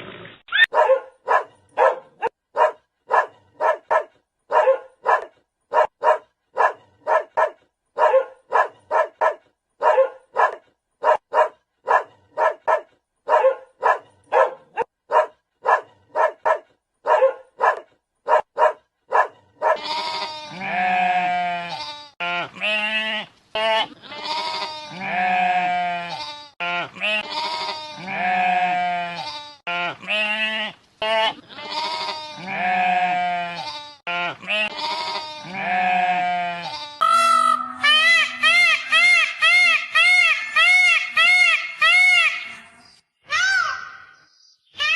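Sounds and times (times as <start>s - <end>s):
dog barking: 0.6s - 19.8s
long wavering bleats: 19.8s - 38.8s.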